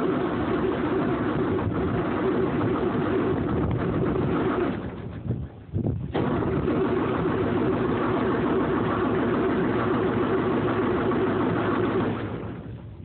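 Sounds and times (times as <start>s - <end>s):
engine cranking on starter: 0.0s - 12.8s.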